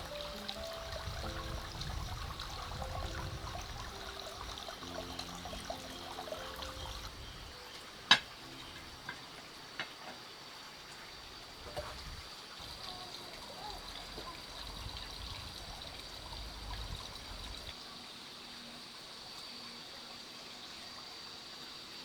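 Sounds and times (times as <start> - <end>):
soft background music: 0.0 - 10.5
water running and trickling: 0.0 - 22.0.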